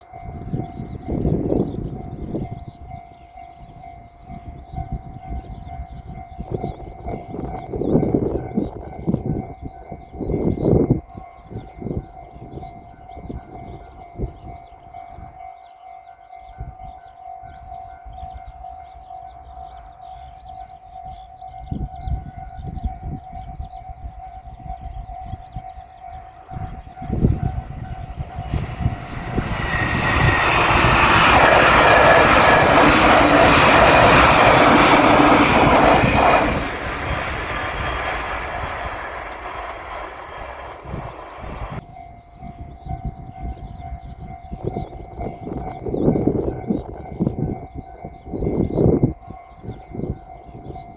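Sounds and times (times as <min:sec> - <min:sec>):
level-crossing warning bell: 0:00.0 - 0:50.9
electric train passing: 0:24.1 - 0:41.8.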